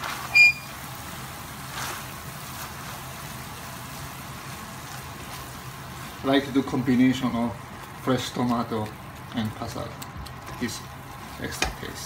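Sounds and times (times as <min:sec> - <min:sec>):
food sizzling in a pot: 0:00.0 - 0:12.0
spatula stirring and scraping: 0:01.4 - 0:12.0.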